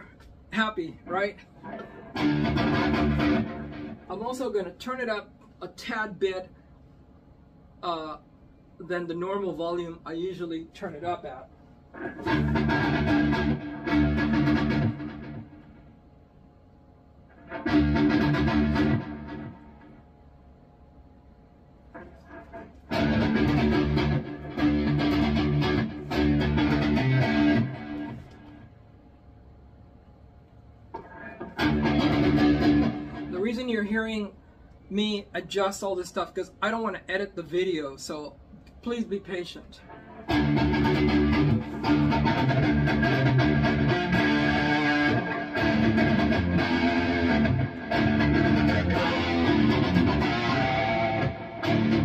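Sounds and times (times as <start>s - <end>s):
distorted electric guitar chugging riffs: 1.6s - 4.5s, 11.9s - 15.9s, 17.3s - 20.0s, 22.0s - 28.6s, 31.0s - 33.7s, 39.8s - 52.0s.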